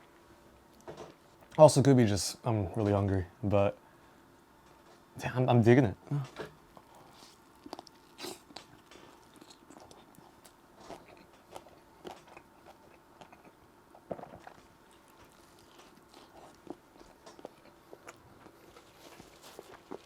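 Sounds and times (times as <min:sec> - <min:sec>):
chewing and mouth sounds: 0:06.7 - 0:20.0.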